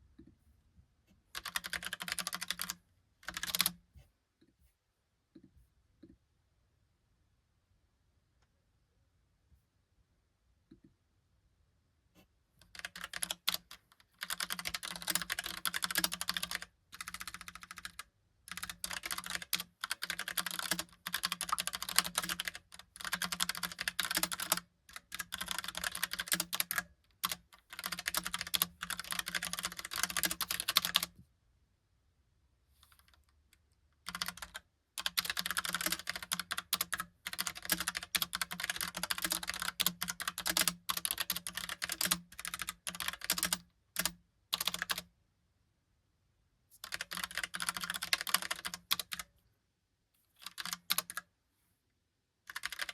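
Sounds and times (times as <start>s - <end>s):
mechanical keyboard typing: 1.4s - 3.8s, 12.6s - 31.1s, 34.0s - 45.1s, 46.8s - 49.3s, 50.4s - 51.2s, 52.5s - 52.9s.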